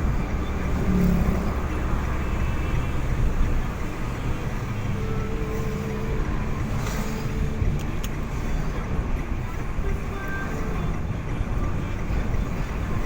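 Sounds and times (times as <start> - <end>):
car engine hum: 0.0 - 13.0
road noise: 0.0 - 13.0.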